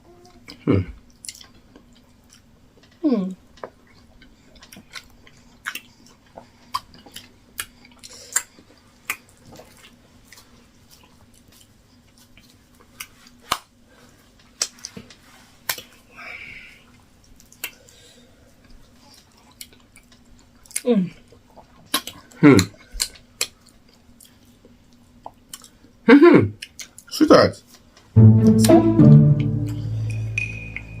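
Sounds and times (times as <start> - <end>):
mouth clicks and lip smacks: 4.6 - 10.0, 21.6 - 24.4, 26.6 - 27.1.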